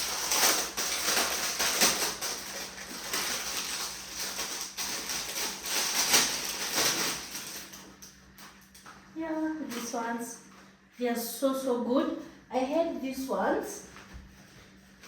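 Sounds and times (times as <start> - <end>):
plastic packaging crinkling: 0.0 - 8.8.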